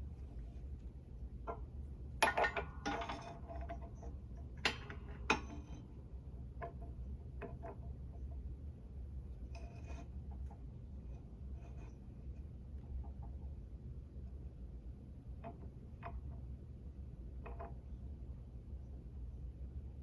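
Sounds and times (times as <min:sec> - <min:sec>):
metal rattle: 0:01.5 - 0:05.8
metal tools clanking: 0:02.2 - 0:03.9.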